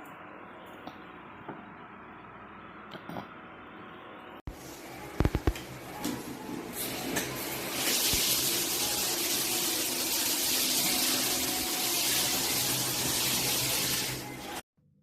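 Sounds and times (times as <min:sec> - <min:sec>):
shower water spraying: 0:06.2 - 0:14.6.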